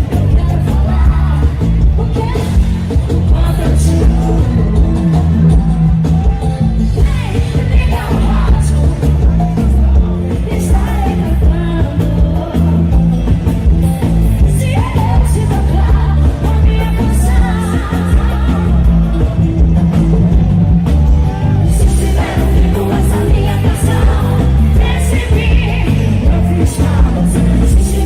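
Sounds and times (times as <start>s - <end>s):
person singing: 0.0s - 13.1s
calypso band music: 0.0s - 28.0s.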